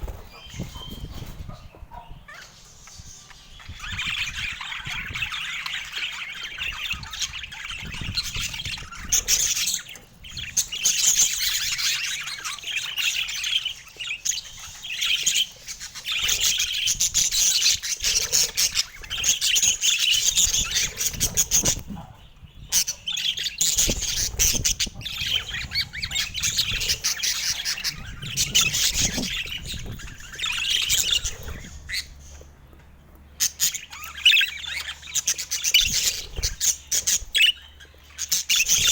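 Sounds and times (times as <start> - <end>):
budgerigars chattering: 0.0 - 32.6, 33.4 - 38.9.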